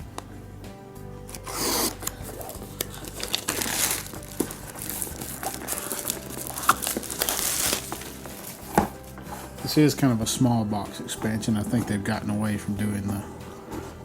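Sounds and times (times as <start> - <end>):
plastic shrink wrap crinkling: 1.3 - 9.4.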